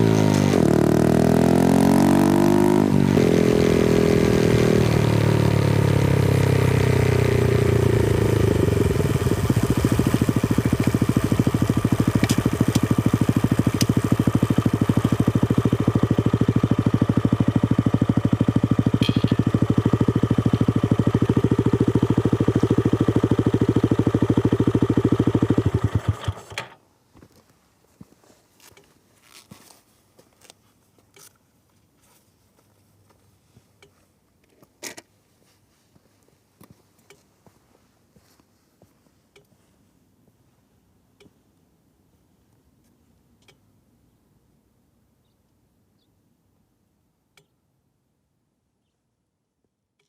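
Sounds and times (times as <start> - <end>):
motorcycle engine idling: 3.6 - 26.6.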